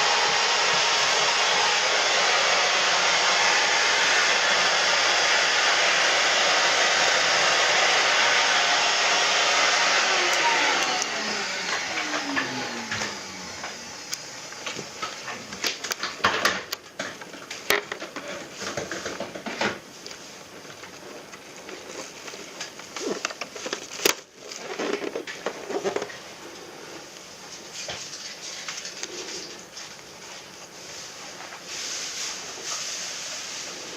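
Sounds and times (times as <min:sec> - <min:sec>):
electric motor winding down: 0:00.0 - 0:16.0.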